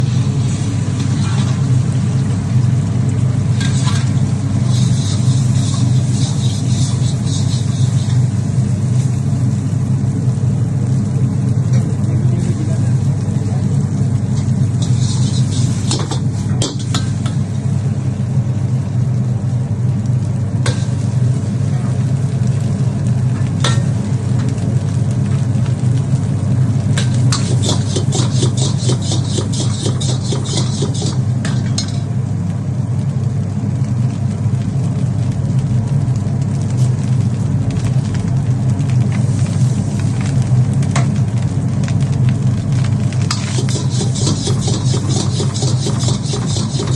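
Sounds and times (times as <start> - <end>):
rice sizzling in a pan: 0.0 - 46.9
metal spatula scraping a pan: 1.0 - 1.6, 3.6 - 8.3, 14.4 - 17.3, 27.3 - 32.0, 43.3 - 46.9.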